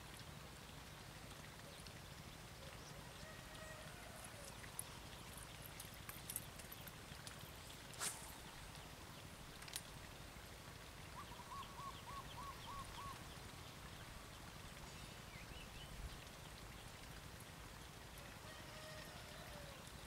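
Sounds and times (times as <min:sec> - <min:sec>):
faint steady hiss: 0:00.0 - 0:20.0
bird calling: 0:11.2 - 0:13.2.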